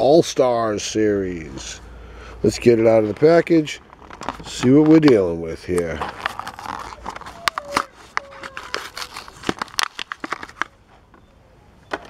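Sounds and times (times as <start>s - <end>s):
plastic blister pack tearing: 3.8s - 10.8s.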